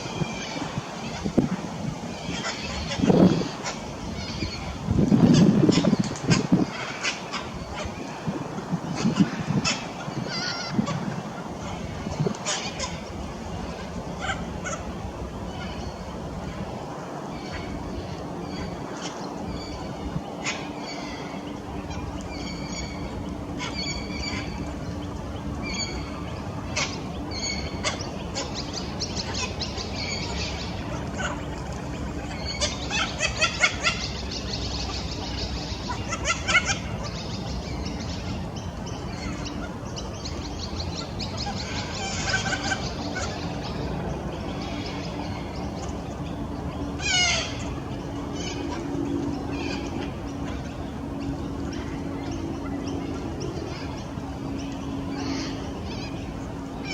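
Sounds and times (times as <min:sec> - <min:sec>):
steady low hum: 0:00.0 - 0:56.9
cockatoos calling: 0:17.3 - 0:56.9.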